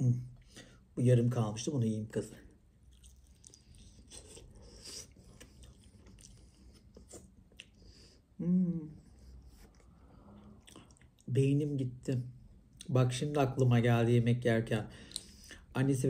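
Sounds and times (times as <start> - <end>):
chewing and tearing meat: 2.7 - 7.9, 9.5 - 11.3
short hummed voice: 8.4 - 9.0.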